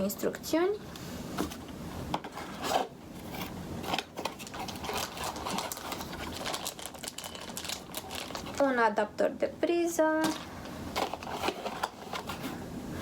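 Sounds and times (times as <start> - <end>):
packaging rustling: 1.4 - 8.8, 10.2 - 12.6.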